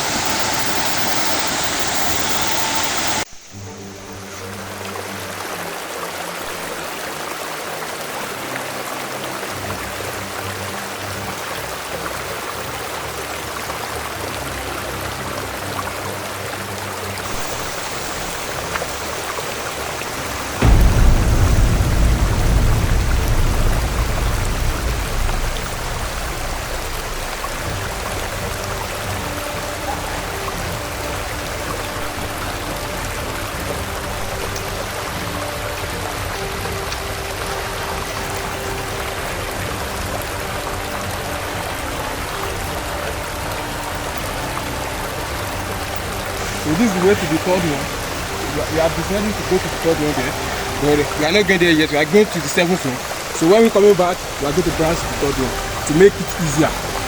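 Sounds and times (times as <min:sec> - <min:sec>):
waterfall rushing: 0:00.0 - 0:57.0
music of held chords: 0:08.1 - 0:57.0
loud low rumble: 0:20.2 - 0:31.0.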